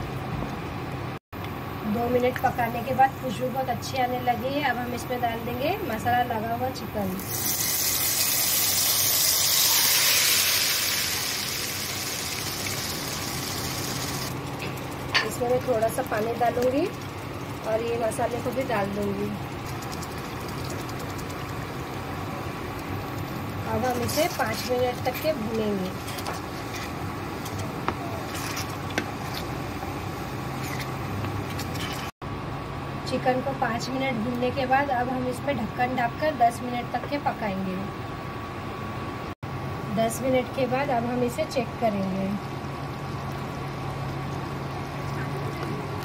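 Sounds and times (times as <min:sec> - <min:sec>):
chicken sizzling in a pan: 0:07.2 - 0:14.4
chicken sizzling in hot oil: 0:07.2 - 0:27.6
spatula stirring: 0:23.8 - 0:29.6.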